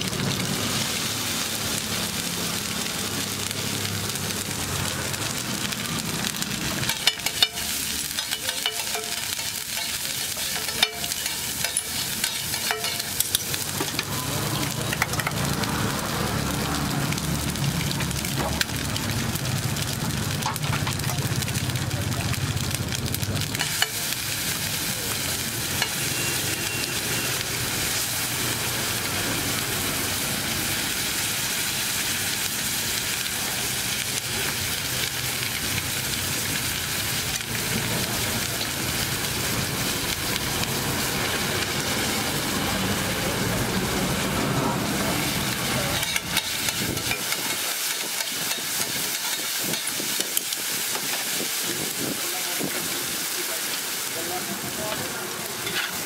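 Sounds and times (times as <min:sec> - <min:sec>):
egg mixture sizzling on griddle: 0:00.0 - 0:56.0
spatula scraping and tapping griddle: 0:06.8 - 0:14.1, 0:45.5 - 0:51.3, 0:55.6 - 0:56.0.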